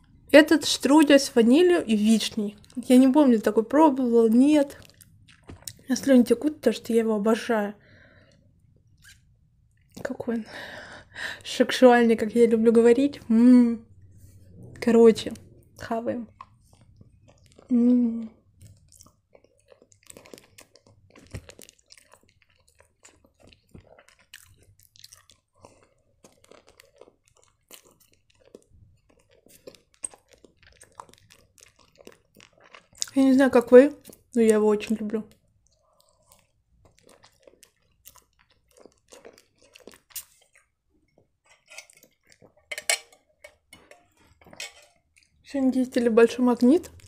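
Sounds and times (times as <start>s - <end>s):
person chewing with mouth clicks: 4.6s - 5.9s, 8.2s - 10.2s, 13.9s - 33.2s, 34.0s - 34.6s, 35.3s - 45.4s, 46.6s - 47.0s.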